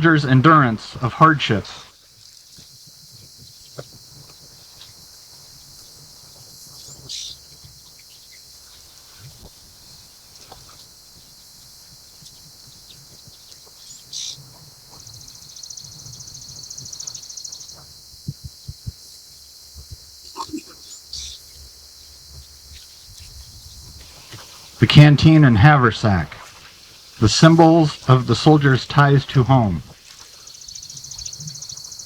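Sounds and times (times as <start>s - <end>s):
birds chirping: 0.0s - 2.6s, 3.2s - 18.0s, 20.2s - 32.0s
rapid high bird trill: 13.7s - 17.8s, 20.3s - 21.5s, 24.1s - 32.0s.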